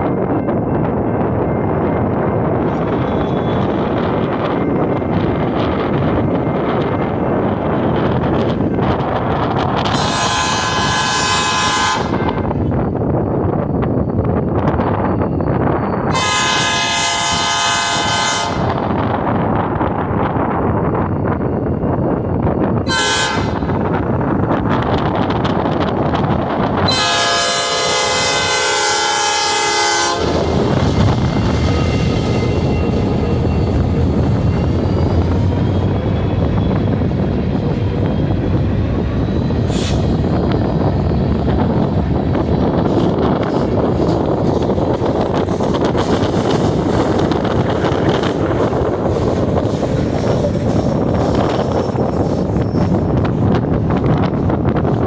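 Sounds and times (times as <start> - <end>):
train rumbling: 0.0 - 55.0
wind buffeting microphone: 0.0 - 55.0
locomotive horn blast: 9.9 - 12.4, 16.1 - 18.8, 22.9 - 23.7, 26.8 - 32.9.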